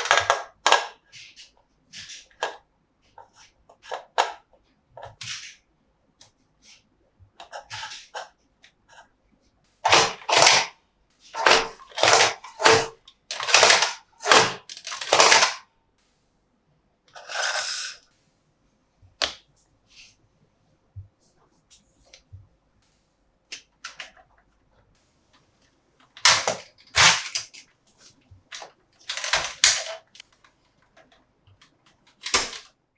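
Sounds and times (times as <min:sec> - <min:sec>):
plastic toy clacking and snapping: 0:00.0 - 0:02.6, 0:09.9 - 0:10.7, 0:11.4 - 0:15.6, 0:26.2 - 0:27.6, 0:28.5 - 0:30.2, 0:31.0 - 0:32.7
plastic toy rustling clatter: 0:09.8 - 0:10.7, 0:11.3 - 0:15.6, 0:17.2 - 0:18.0, 0:26.2 - 0:30.2.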